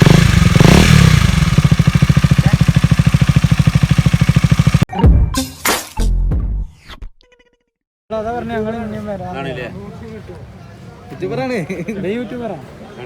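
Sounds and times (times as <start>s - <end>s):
motorcycle engine idling: 0.0s - 4.9s.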